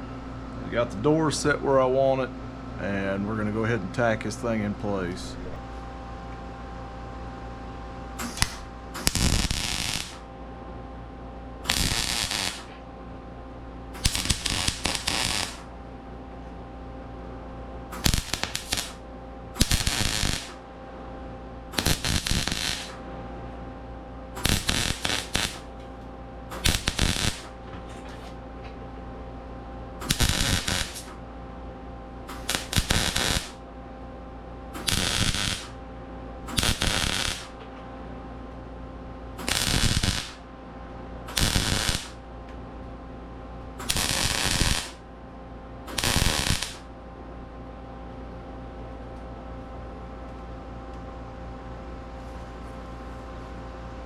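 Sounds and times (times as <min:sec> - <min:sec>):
steady background hum: 0:00.0 - 0:54.0
crackling welding arcs: 0:08.2 - 0:10.3, 0:11.6 - 0:12.8, 0:13.9 - 0:15.7, 0:17.9 - 0:19.0, 0:19.6 - 0:20.7, 0:21.7 - 0:23.0, 0:24.4 - 0:28.4, 0:30.0 - 0:31.2, 0:32.2 - 0:33.6, 0:34.8 - 0:35.8, 0:36.5 - 0:37.7, 0:39.4 - 0:40.5, 0:41.3 - 0:42.2, 0:43.8 - 0:45.0, 0:45.9 - 0:46.9.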